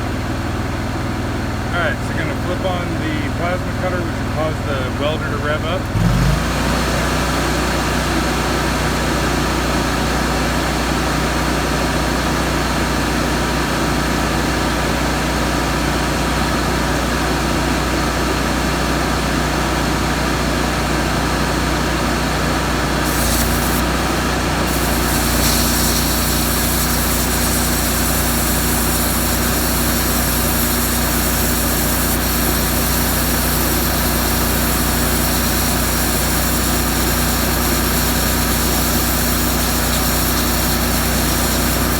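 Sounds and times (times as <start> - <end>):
generator engine running: 0.0 - 41.9
hiss: 23.1 - 41.9.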